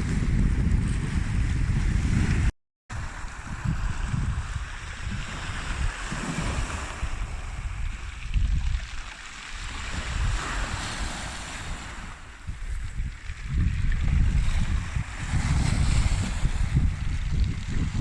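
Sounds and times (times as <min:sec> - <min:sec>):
wind buffeting microphone: 0:00.0 - 0:18.0
sea surf hiss: 0:09.0 - 0:12.6.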